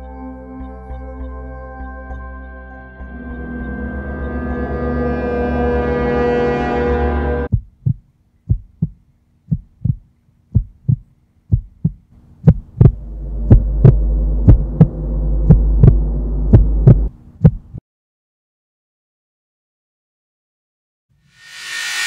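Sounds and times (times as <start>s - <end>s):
low droning hum: 0.0s - 7.6s, 11.6s - 17.2s
heartbeat thumps: 7.5s - 17.8s.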